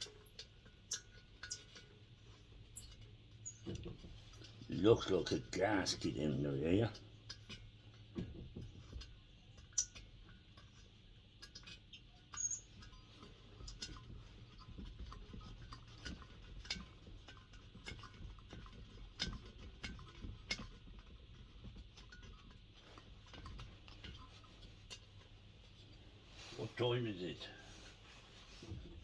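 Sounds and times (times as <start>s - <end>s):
metal tools clicking and knocking: 0.0s - 2.0s, 2.8s - 4.6s
low steady hum: 0.0s - 17.8s.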